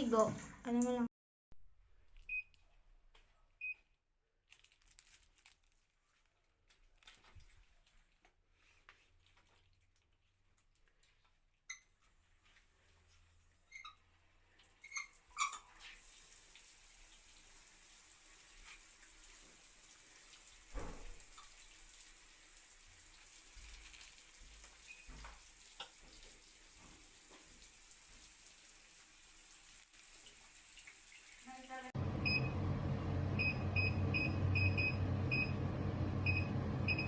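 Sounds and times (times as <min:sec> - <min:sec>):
water running from tap: 0:14.6 - 0:32.0.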